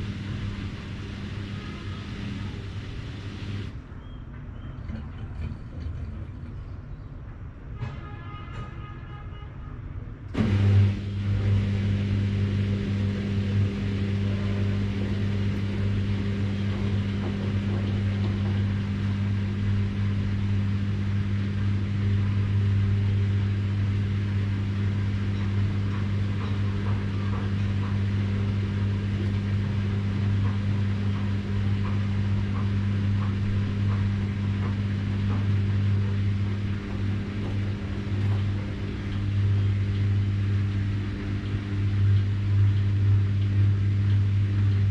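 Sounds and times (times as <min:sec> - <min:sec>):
washing machine humming: 0:00.0 - 0:06.9, 0:10.3 - 0:44.9
faint ticking: 0:25.2 - 0:44.9.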